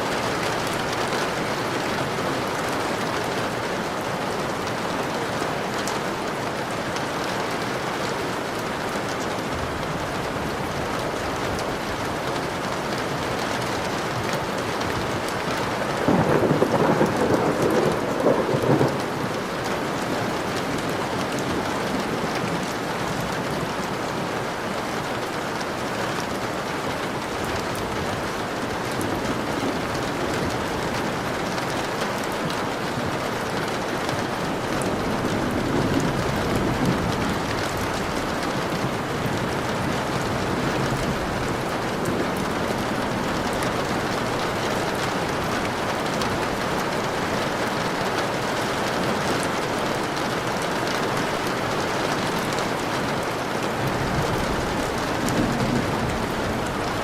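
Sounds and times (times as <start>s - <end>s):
steady rain falling: 0.0s - 57.0s
thunder rumbling: 14.8s - 23.0s, 34.4s - 57.0s.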